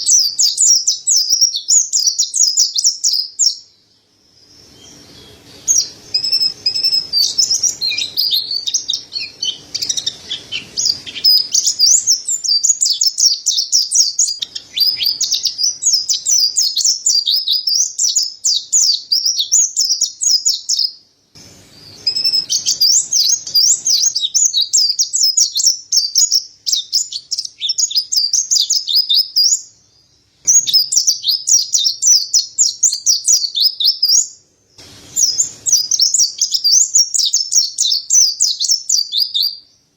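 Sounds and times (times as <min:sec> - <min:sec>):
bird high twittering song: 0:00.0 - 0:39.9.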